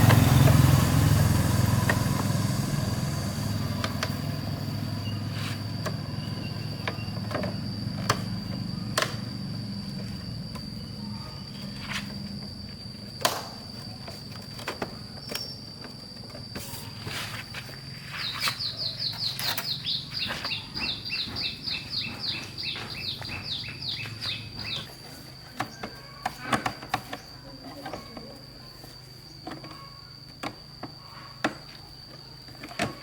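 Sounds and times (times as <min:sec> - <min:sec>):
sharp knocks and clicks: 0:19.2 - 0:23.7.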